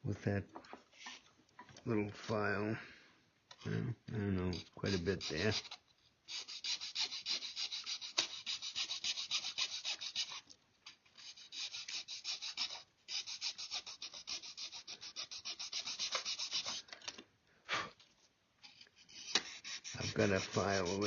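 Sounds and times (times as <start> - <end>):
hand file rasping: 4.6 - 10.4, 11.2 - 16.9, 19.0 - 21.0.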